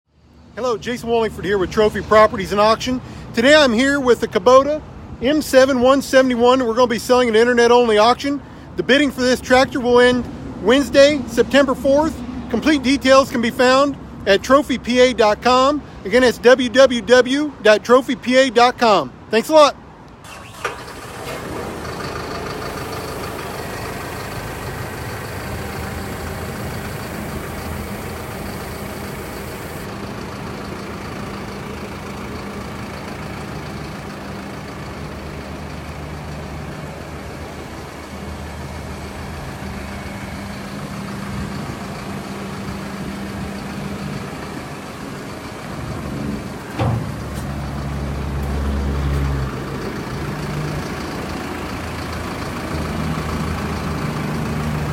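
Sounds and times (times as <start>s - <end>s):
tractor diesel engine running: 20.1s - 54.9s
sharp clunk: 46.7s - 47.6s.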